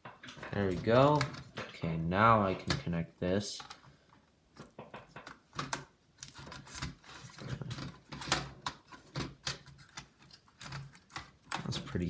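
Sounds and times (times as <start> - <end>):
plastic laptop parts clicking: 4.6 - 11.7.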